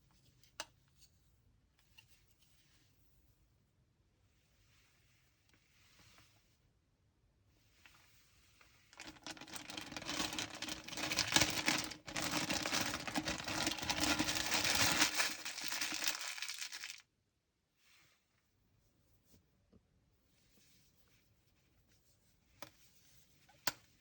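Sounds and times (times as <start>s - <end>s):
packaging crinkling and rustling: 9.0s - 17.0s.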